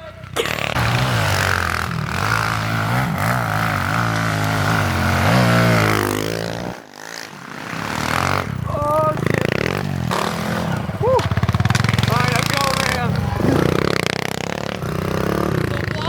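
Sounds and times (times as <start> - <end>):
pit bike engine revving: 0.0 - 16.0.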